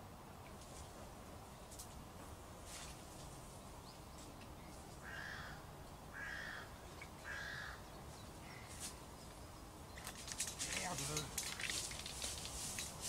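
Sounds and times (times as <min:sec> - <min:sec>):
faint outdoor background: 0:00.0 - 0:13.0
bird cawing harshly: 0:05.0 - 0:07.8.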